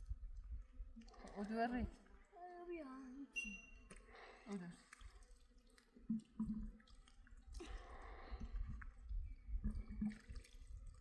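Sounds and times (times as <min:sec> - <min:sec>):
water pouring and splashing: 0:03.9 - 0:11.0.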